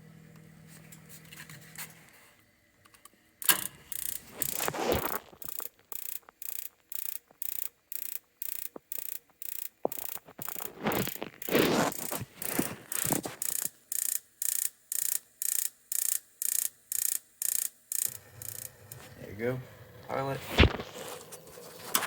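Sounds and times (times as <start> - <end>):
spark igniter ticking: 3.4 - 19.1.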